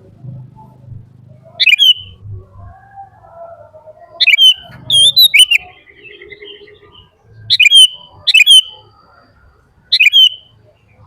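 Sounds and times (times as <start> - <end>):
faint lower bird chirps: 0.5 - 2.3, 3.2 - 11.0
high-pitched bird calls: 1.4 - 2.2, 3.1 - 11.0.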